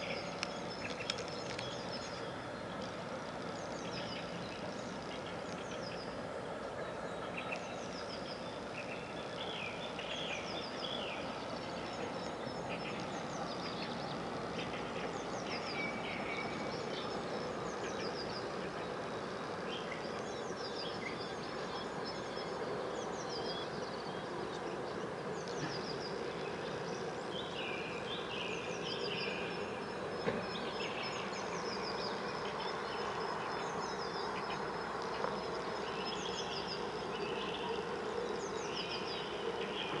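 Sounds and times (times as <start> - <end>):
birds chirping: 0.0 - 40.0
steady low hum: 0.0 - 40.0.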